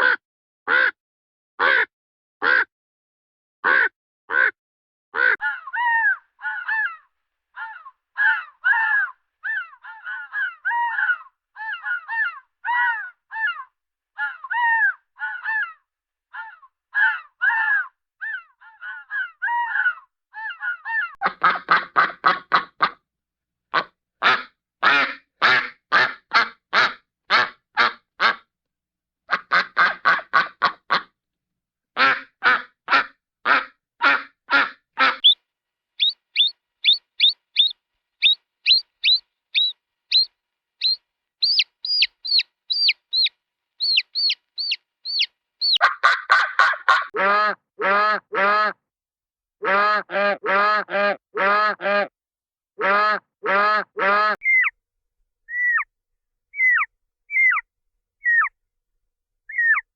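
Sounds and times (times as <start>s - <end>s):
cartoon quacking calls: 0.0s - 1.0s, 1.6s - 2.7s, 3.6s - 4.6s, 32.0s - 35.4s, 36.0s - 48.8s
cartoon bird chirps: 35.1s - 35.4s, 36.0s - 46.1s, 54.4s - 54.8s, 55.5s - 55.9s, 56.6s - 57.6s, 58.2s - 58.5s, 59.5s - 59.9s.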